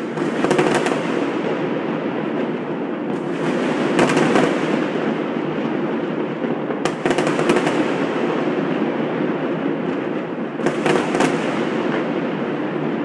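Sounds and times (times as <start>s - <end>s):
firework bangs and crackles: 0.0s - 13.0s.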